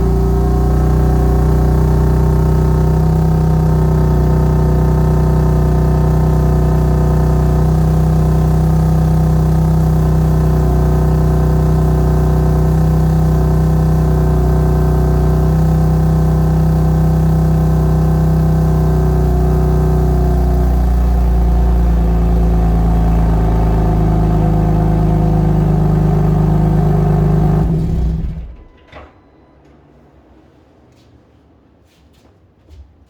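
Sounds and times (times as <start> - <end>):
car engine idling: 0.0 - 28.7.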